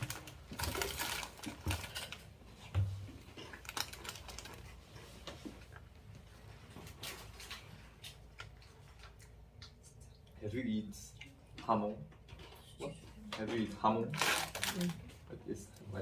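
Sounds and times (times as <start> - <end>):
potato chips crunching: 3.4 - 4.6.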